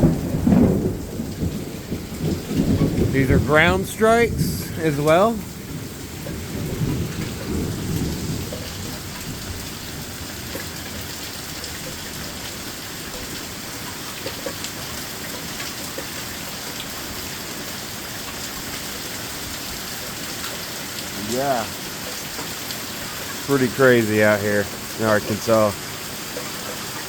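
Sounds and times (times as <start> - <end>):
thunder rumbling: 0.0 - 12.2
rain falling: 0.0 - 27.0.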